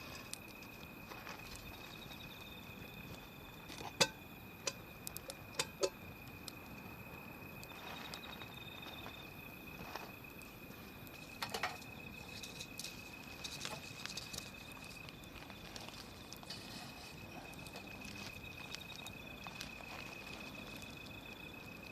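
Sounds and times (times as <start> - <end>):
wood fire crackling: 0.0 - 21.9.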